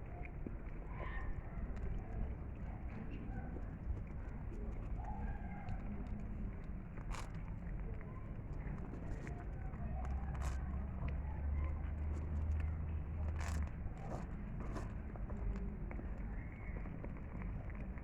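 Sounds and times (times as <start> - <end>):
cat chewing food: 0.0 - 18.0.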